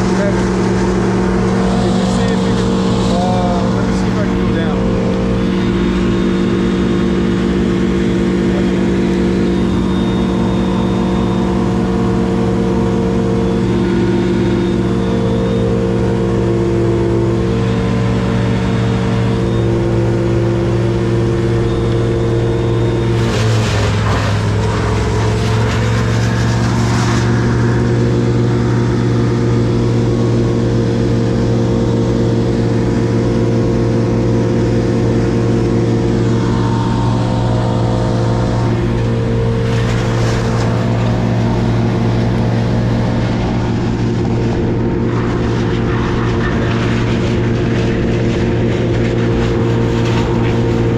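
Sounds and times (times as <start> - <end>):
motor engine running: 0.0 - 50.9
burst of harsh noise: 17.6 - 28.0.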